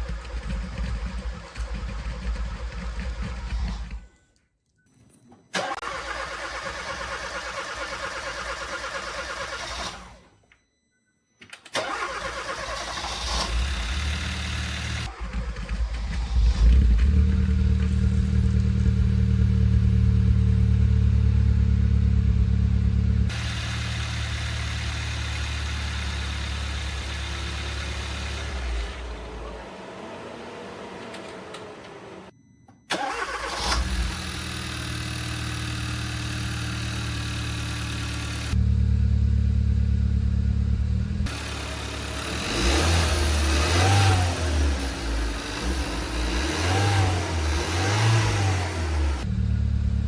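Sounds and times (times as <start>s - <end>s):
car engine running: 13.5s - 32.3s, 33.0s - 50.0s.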